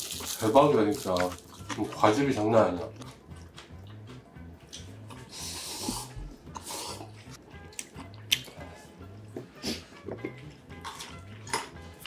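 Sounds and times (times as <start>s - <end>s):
soft background music: 0.0s - 12.0s
wet chewing and mouth smacks: 2.9s - 5.3s, 7.6s - 8.7s, 10.2s - 12.0s.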